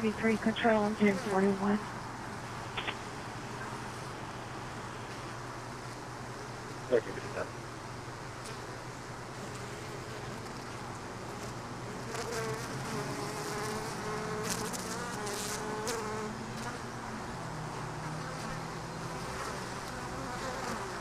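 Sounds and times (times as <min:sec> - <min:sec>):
honey bees buzzing: 0:00.0 - 0:21.0
short clicks: 0:02.8 - 0:03.0.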